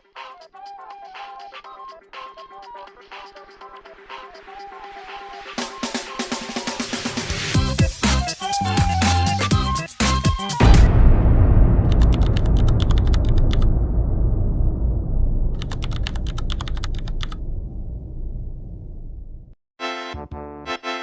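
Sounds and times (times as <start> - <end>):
deep rumbling boom: 10.6 - 19.6
rapid keyboard-like clicking: 11.9 - 13.7, 15.6 - 17.4.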